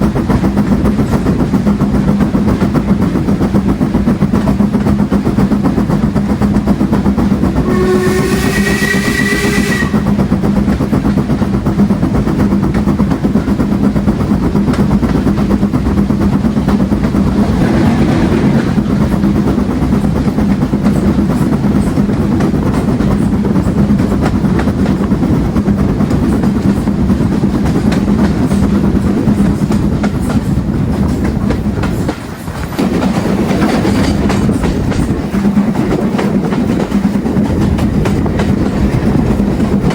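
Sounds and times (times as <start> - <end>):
train rumble with rail clatter: 0.0 - 39.9
locomotive whistle: 7.6 - 10.3.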